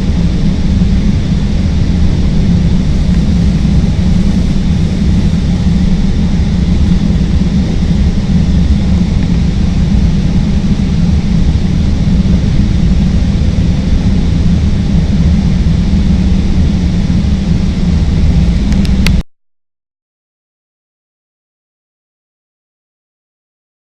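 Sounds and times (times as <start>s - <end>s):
elevated train rumbling on rails: 0.0s - 19.2s.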